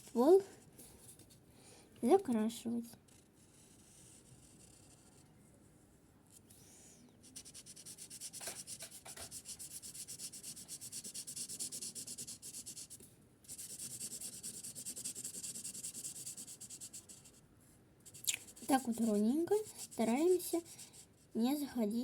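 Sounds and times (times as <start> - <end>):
marker strokes on paper: 3.1 - 5.2, 6.4 - 17.4, 18.0 - 21.2.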